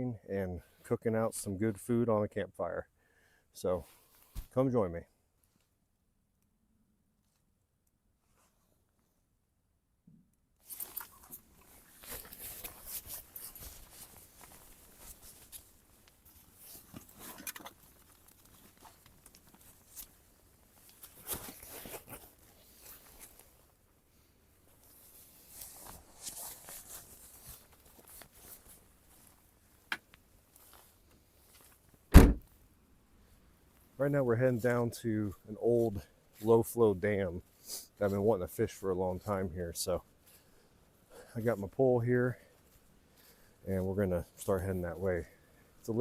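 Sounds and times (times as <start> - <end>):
dense crunching and rustling: 10.6 - 23.7, 24.7 - 32.6
loud thump: 32.1 - 32.5.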